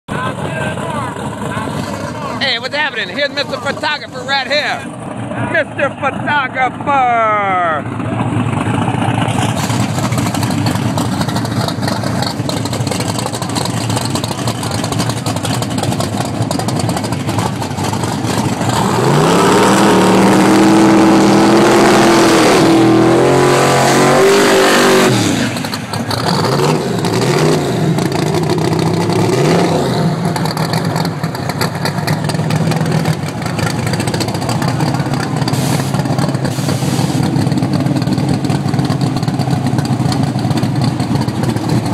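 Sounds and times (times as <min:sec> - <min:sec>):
car engine idling and revving: 0:00.1 - 0:41.9.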